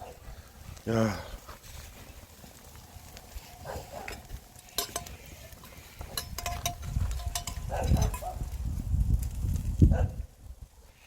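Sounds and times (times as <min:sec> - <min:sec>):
utensils clinking against a pot: 0:04.1 - 0:08.4.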